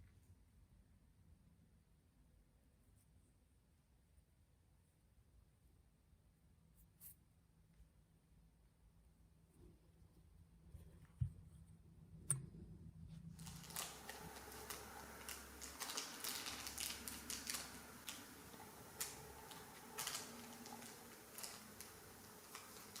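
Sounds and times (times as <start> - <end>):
faint hiss: 13.2 - 23.0.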